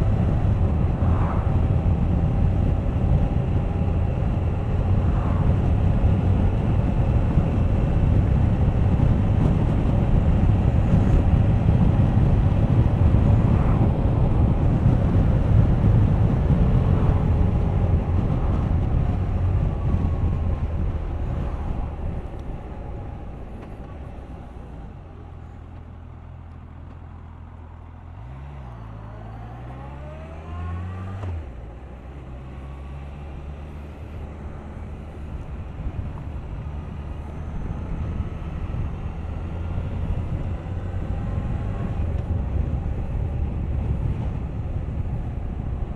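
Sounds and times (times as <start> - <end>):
wind noise: 0.0 - 26.0, 28.2 - 45.9.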